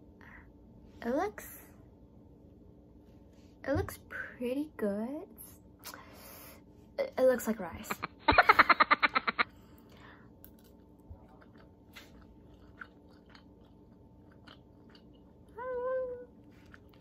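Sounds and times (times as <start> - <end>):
person chewing rice: 9.8 - 15.6, 16.4 - 17.0
person humming: 15.6 - 16.3.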